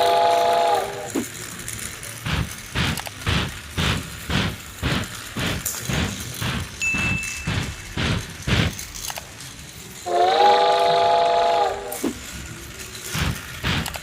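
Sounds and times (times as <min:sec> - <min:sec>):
toy train whistle chord: 0:00.0 - 0:01.1
toy train clicking on plastic track: 0:00.0 - 0:14.0.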